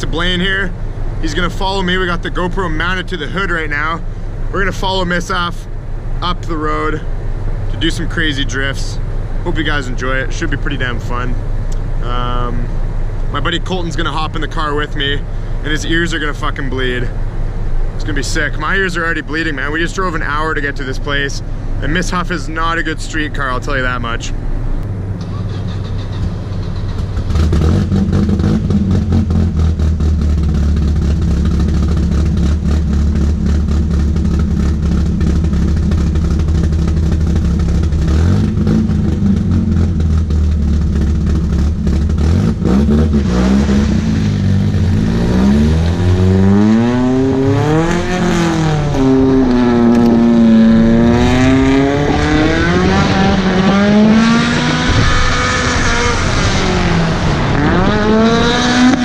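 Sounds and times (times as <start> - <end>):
car engine revving: 24.6 - 59.0.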